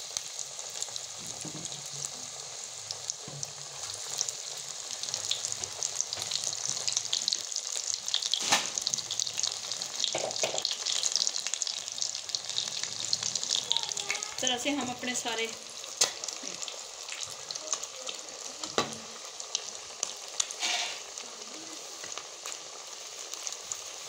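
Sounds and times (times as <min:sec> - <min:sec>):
deep-frying sizzle and crackle: 0:00.0 - 0:24.0.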